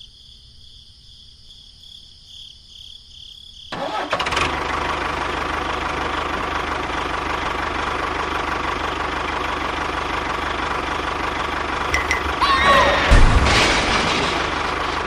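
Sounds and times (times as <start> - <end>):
small engine idling: 3.8 - 12.1.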